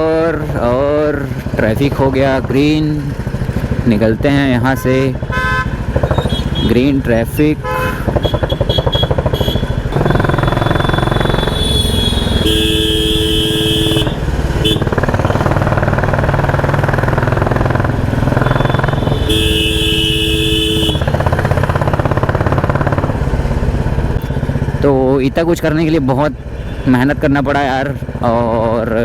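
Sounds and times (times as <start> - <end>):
motorcycle engine running loud: 0.0 - 29.0
vehicle horn: 4.6 - 6.8, 7.6 - 15.6, 18.1 - 21.6.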